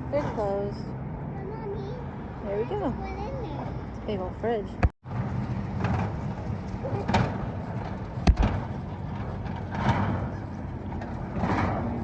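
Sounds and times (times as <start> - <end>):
sharp knock: 8.2 - 8.6.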